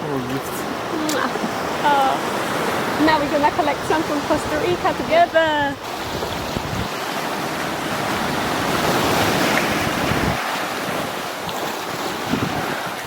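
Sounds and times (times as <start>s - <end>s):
waves breaking on beach: 0.0s - 13.0s
wind on microphone: 0.6s - 13.0s.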